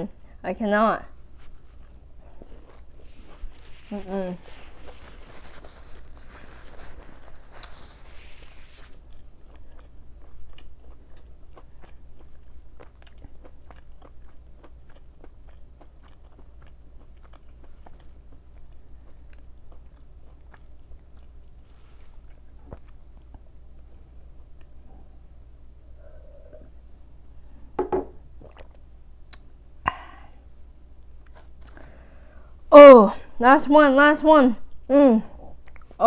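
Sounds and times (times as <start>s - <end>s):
crunchy chewing: 1.2s - 25.3s, 31.1s - 32.0s.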